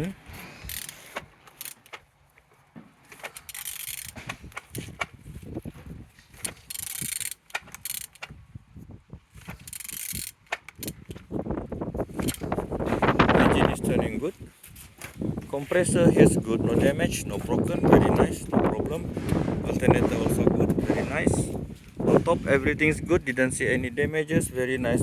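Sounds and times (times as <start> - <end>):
short scraping rasps: 0.0 - 2.1, 3.0 - 8.4, 9.3 - 11.4, 18.9 - 23.0
engine mechanical clicks: 0.3 - 5.2, 6.3 - 8.4, 9.4 - 11.4, 12.1 - 12.7
ratchet-like clatter: 0.4 - 2.0, 3.1 - 5.1, 6.3 - 8.4, 9.4 - 11.3, 12.2 - 12.5.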